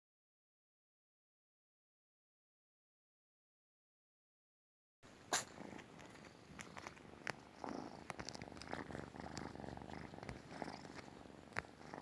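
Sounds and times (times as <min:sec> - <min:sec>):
cat purring: 0:05.1 - 0:12.0.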